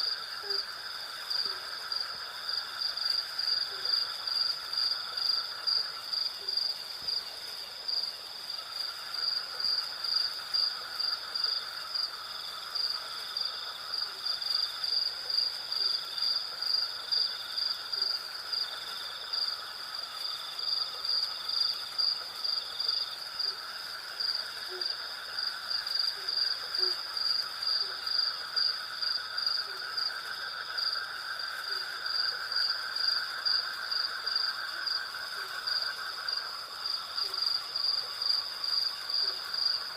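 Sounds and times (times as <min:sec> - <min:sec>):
high pulsing insect chirp: 0:00.0 - 0:39.9
low continuous insect trill: 0:00.0 - 0:39.9.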